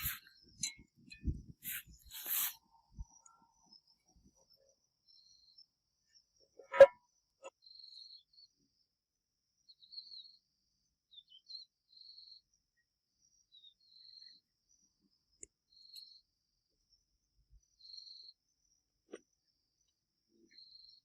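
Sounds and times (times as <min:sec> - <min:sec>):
short high chirps: 0:00.0 - 0:00.2, 0:01.6 - 0:02.6
crickets chirring: 0:00.0 - 0:08.6.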